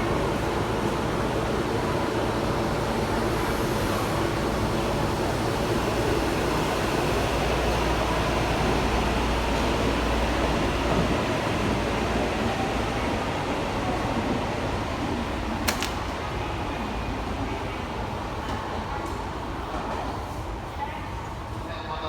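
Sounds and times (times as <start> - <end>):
subway train noise: 0.0 - 22.0
short sharp click: 15.7 - 16.0.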